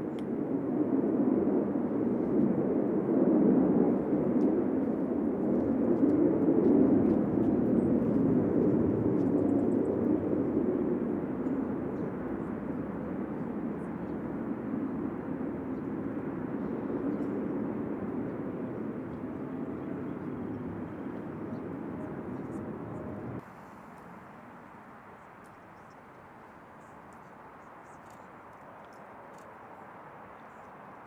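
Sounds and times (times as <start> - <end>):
aircraft engine rumble: 0.3 - 24.0.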